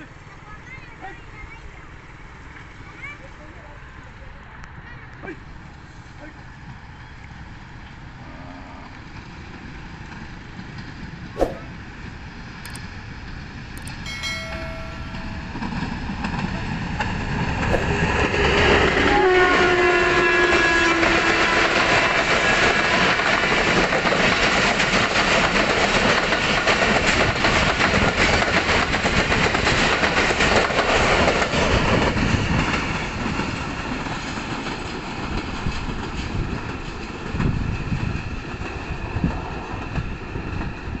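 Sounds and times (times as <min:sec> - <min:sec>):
train coaches rumbling and clacking: 0:12.7 - 0:41.0
locomotive horn: 0:19.0 - 0:22.0.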